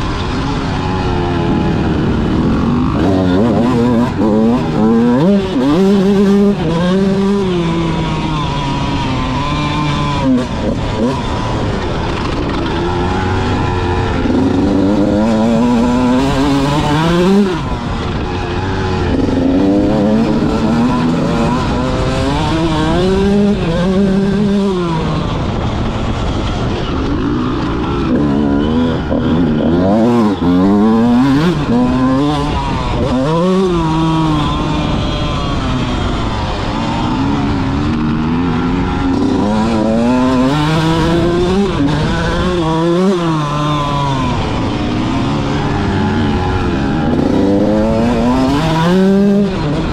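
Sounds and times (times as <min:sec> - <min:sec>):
motocross bike engine revving: 0:00.0 - 0:49.9.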